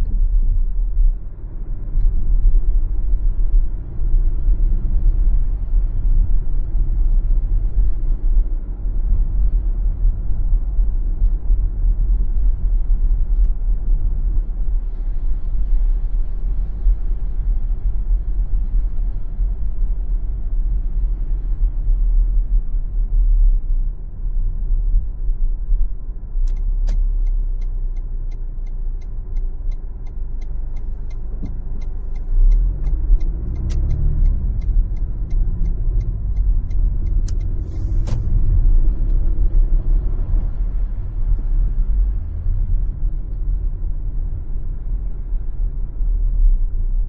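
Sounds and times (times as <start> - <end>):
car engine and tyre rumble: 0.0 - 47.0
turn signal clicking: 26.4 - 41.8.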